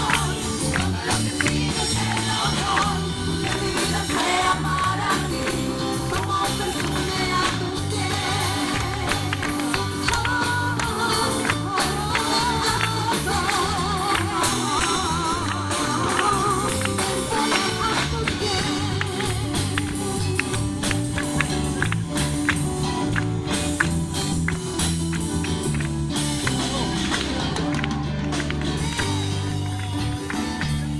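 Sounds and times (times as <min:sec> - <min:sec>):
voices singing with vibrato: 0:00.0 - 0:21.8
bass: 0:00.0 - 0:30.9
percussive beat: 0:00.0 - 0:30.9.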